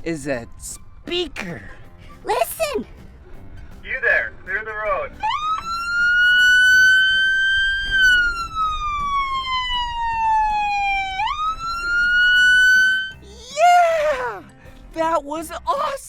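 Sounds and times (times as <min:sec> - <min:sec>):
police siren wailing: 0:05.2 - 0:13.2.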